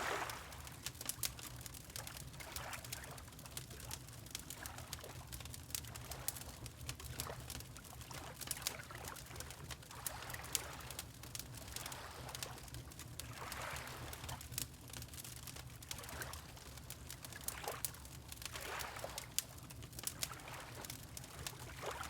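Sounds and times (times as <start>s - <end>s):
water lapping: 0.0s - 0.8s, 20.4s - 20.8s, 21.6s - 22.0s
wood fire crackling: 0.0s - 8.6s, 9.7s - 13.0s, 13.8s - 18.6s, 19.2s - 21.7s.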